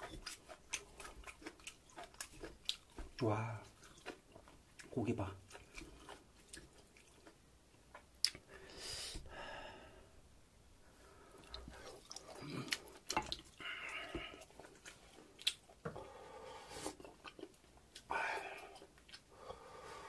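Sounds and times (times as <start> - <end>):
wet chewing: 0.0 - 8.6, 11.3 - 19.5
lip smacking: 5.5 - 8.6, 11.4 - 15.8.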